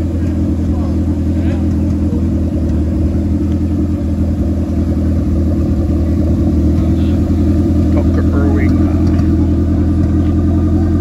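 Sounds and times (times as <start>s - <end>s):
car engine running steadily: 0.0s - 11.0s.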